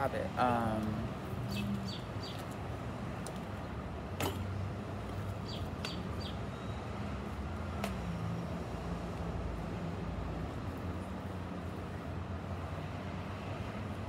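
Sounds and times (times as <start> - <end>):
small bird chirping: 1.4 - 2.4.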